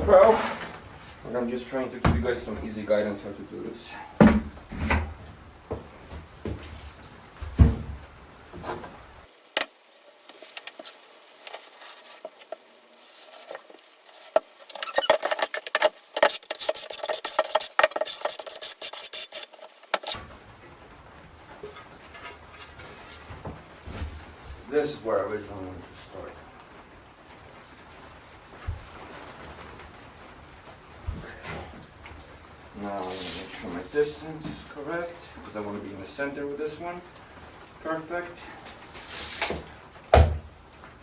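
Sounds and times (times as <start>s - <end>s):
scraping and rubbing mortar: 0.0s - 1.2s, 10.4s - 20.2s, 32.8s - 34.2s, 38.7s - 39.7s.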